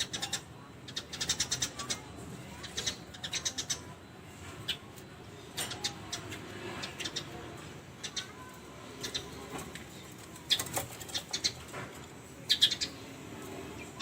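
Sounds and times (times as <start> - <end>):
birds chirping rapidly: 0.0 - 14.0.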